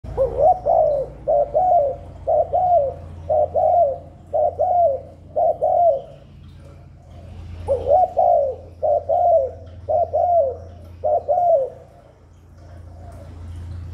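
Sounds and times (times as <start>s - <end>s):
dove cooing: 0.0s - 13.9s.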